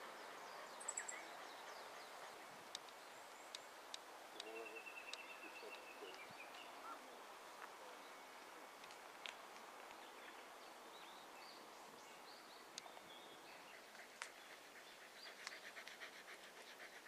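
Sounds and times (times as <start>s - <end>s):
faint bird chirps: 4.3s - 7.2s.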